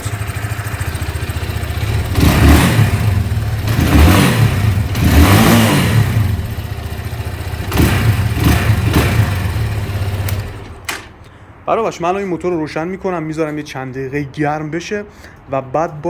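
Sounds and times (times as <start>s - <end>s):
motorcycle engine idling and revving: 0.0s - 10.9s.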